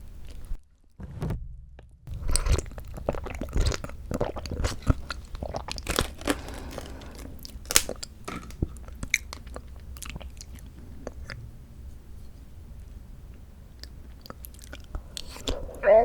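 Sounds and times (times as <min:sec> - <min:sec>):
chewing and biting fruit: 0:02.1 - 0:11.4, 0:13.7 - 0:15.7.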